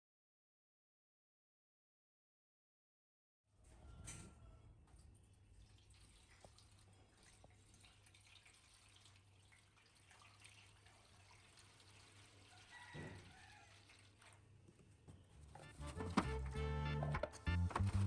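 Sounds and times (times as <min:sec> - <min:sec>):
water trickling and dripping: 0:04.8 - 0:14.8.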